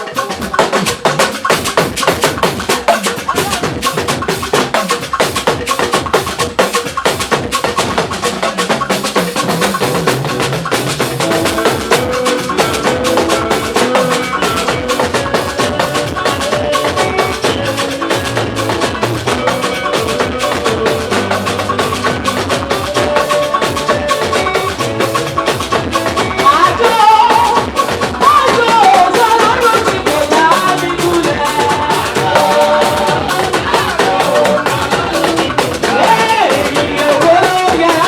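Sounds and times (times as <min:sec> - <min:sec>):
fast percussion: 0:00.0 - 0:38.0
keyboard or guitar melody: 0:09.2 - 0:38.0
bass line: 0:29.3 - 0:38.0.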